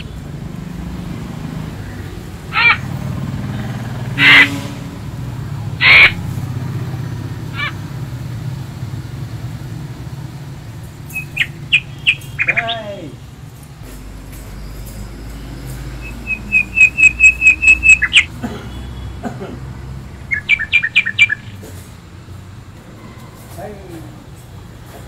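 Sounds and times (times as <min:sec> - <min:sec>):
bird calling: 0:00.0 - 0:00.8, 0:01.5 - 0:04.7, 0:05.7 - 0:08.2, 0:10.6 - 0:22.0.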